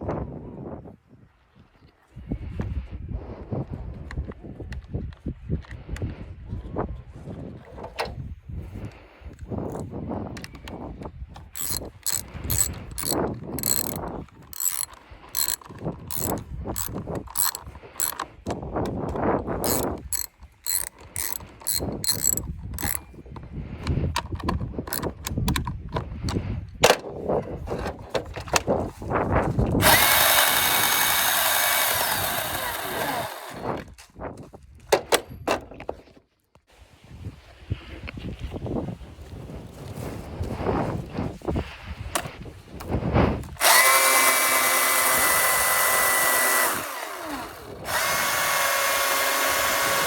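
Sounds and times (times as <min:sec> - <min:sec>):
chainsaw clicks and rattles: 0:09.7 - 0:26.4, 0:29.8 - 0:33.9, 0:43.4 - 0:50.0
electric chainsaw motor running: 0:11.6 - 0:18.2, 0:19.6 - 0:23.0, 0:29.8 - 0:33.8, 0:43.6 - 0:50.0.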